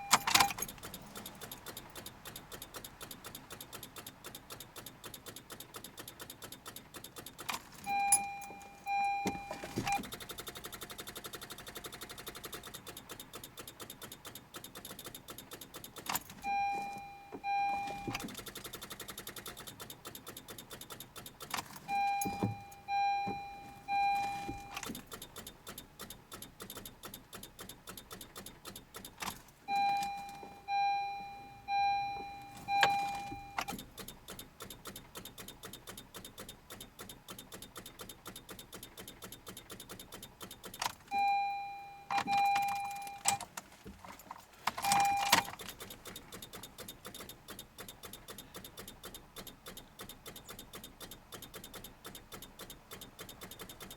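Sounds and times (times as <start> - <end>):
dashboard warning chime beeps: 0.0 - 4.0, 7.8 - 10.2, 15.9 - 18.3, 21.6 - 25.6, 29.6 - 33.8, 41.0 - 43.5, 44.8 - 45.6
fast steady clicking: 0.1 - 7.9, 9.9 - 16.4, 18.1 - 22.0, 24.6 - 29.8, 33.6 - 41.1, 44.6 - 53.9.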